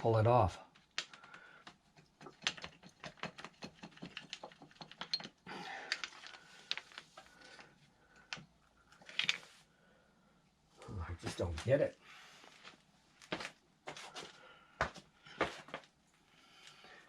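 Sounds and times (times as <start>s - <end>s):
light clicks and knocks of hands working: 0.6s - 9.6s.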